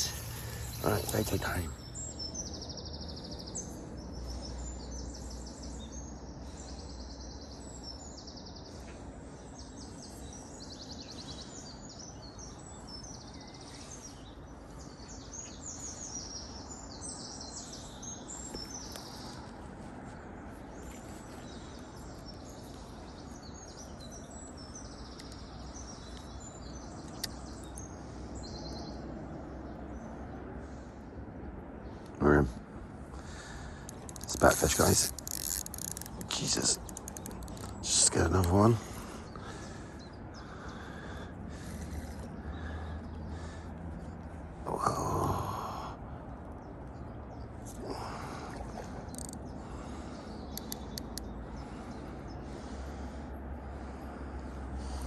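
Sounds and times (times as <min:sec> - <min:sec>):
low outdoor background hum: 0:00.0 - 0:55.0
small birds singing: 0:00.0 - 0:55.0.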